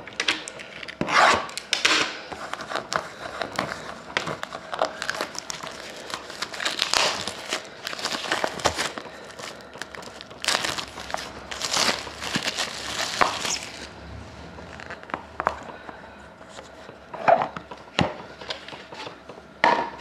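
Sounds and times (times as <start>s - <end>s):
card packaging crinkling: 0.1s - 13.9s, 14.7s - 15.1s.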